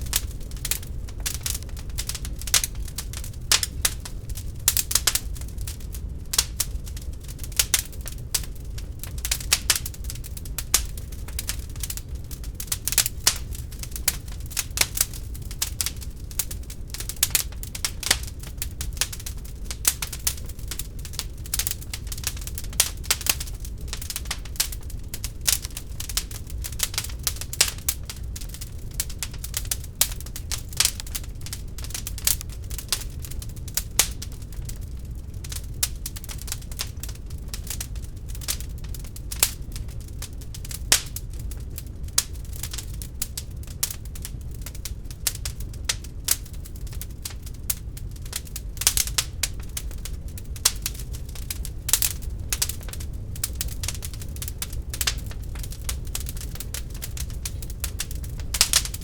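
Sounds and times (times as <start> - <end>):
low rumble of flames: 0.0 - 59.0
wood fire crackling: 0.0 - 59.0.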